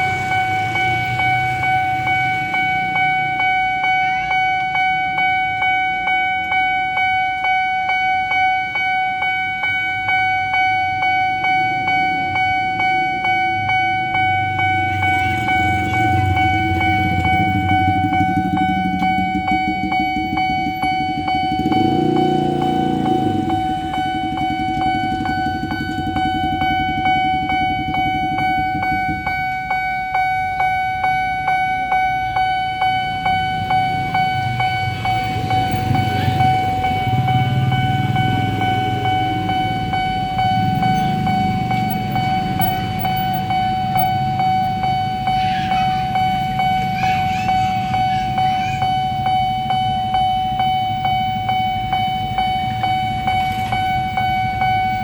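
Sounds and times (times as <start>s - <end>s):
level-crossing alarm bell: 0.0s - 55.0s
train rumbling past: 11.8s - 30.4s.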